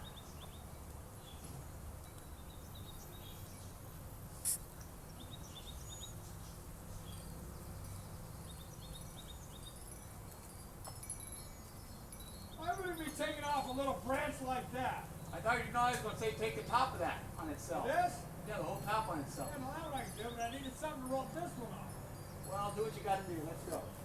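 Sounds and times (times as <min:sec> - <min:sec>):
bird chirps: 0:00.0 - 0:01.6, 0:05.0 - 0:09.9, 0:11.6 - 0:17.0, 0:18.6 - 0:24.0.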